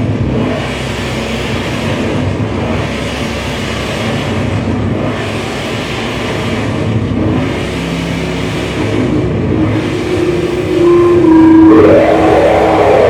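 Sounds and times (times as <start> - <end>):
low drone: 8.1 - 13.0
distorted electronic noise music: 8.9 - 13.0.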